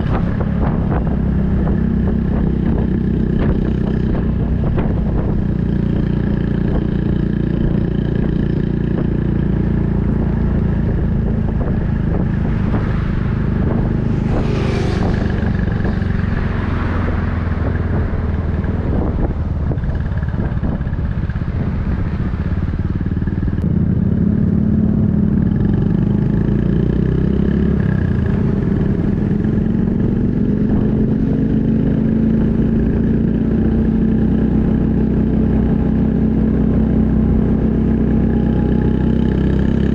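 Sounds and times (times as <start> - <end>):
motorcycle engine exhaust note: 0.0 - 39.9
rushing noise: 11.0 - 18.8.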